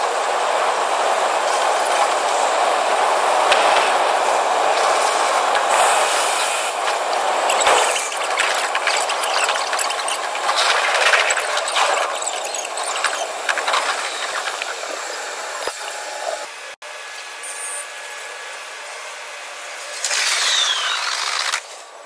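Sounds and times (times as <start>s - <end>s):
train rushing hiss: 0.0s - 7.5s.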